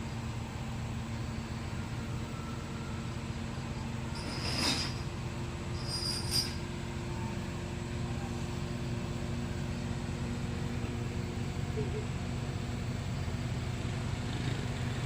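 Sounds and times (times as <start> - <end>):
diesel engine running: 0.0 - 15.0
high metallic squeals: 4.1 - 6.8.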